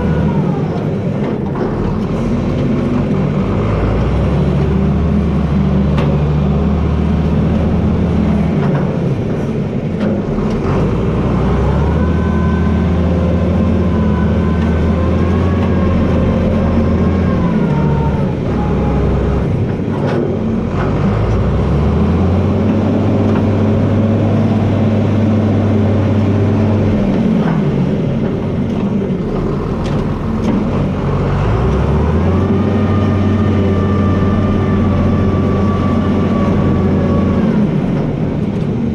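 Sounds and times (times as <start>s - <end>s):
tractor diesel engine running: 0.0s - 38.9s
high-pitched whine: 29.2s - 31.4s.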